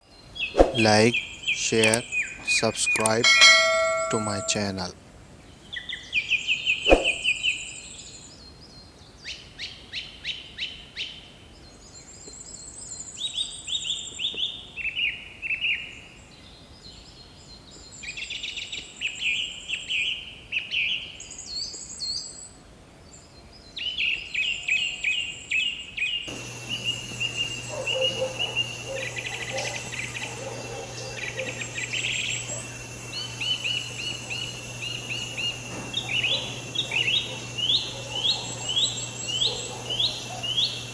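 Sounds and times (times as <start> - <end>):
sharp click: 1.7 - 2.0, 2.8 - 4.8
birds singing and calling: 26.3 - 40.9
low hum: 26.3 - 40.9
steady hiss: 26.3 - 40.9.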